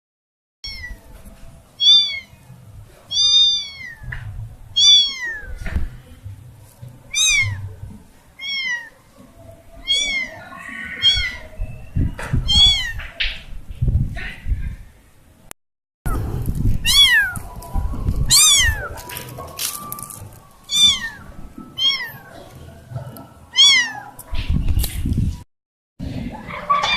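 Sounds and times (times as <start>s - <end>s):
kitten meowing: 0.6s - 1.0s, 1.8s - 2.3s, 3.1s - 4.1s, 4.8s - 5.6s, 7.1s - 7.6s, 8.4s - 8.9s, 9.8s - 11.4s, 12.5s - 13.0s, 16.8s - 17.5s, 18.3s - 18.9s, 20.7s - 21.2s, 21.8s - 22.2s, 23.5s - 24.2s.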